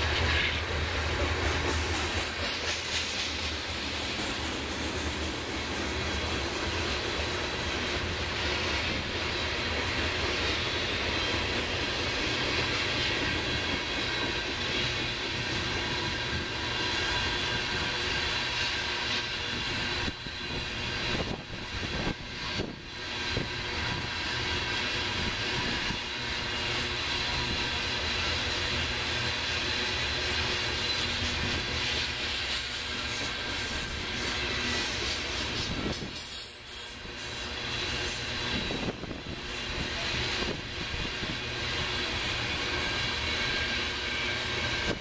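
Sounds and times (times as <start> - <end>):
freight train wheels roaring on rail: 0.0 - 45.0.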